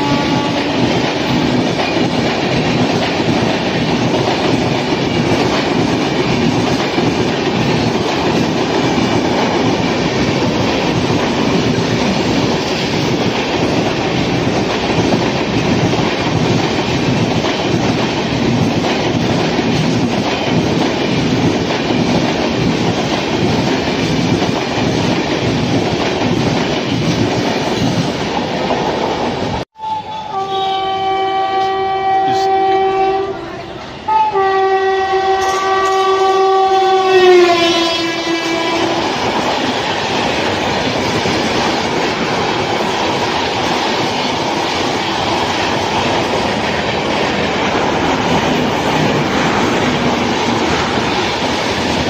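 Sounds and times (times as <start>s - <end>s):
train horn blasts: 0.0s - 1.5s, 29.8s - 39.2s
train coaches rushing past: 0.0s - 52.0s.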